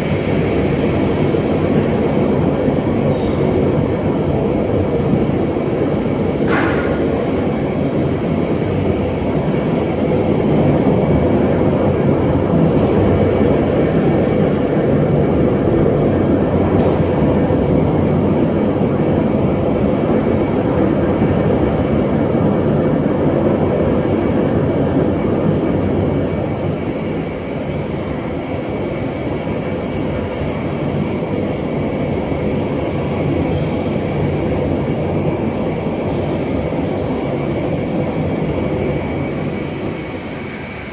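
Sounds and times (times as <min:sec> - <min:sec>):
lathe grinding rumble: 0:00.0 - 0:26.9.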